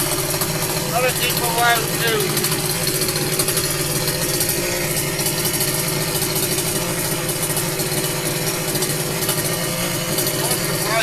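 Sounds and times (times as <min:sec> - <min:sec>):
two-stroke strimmer engine idling: 0:00.0 - 0:11.0.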